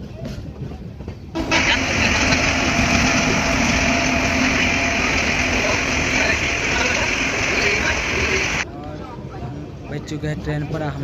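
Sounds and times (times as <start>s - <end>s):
train running: 1.3s - 8.7s.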